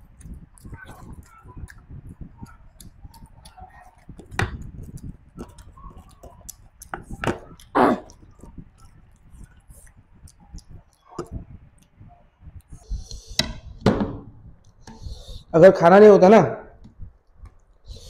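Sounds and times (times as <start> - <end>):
person chewing and lip-smacking: 0.0 - 13.8.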